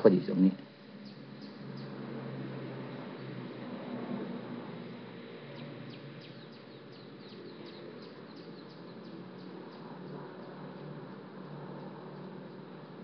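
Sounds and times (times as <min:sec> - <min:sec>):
small bird chirping: 0:01.0 - 0:02.3, 0:05.4 - 0:10.6.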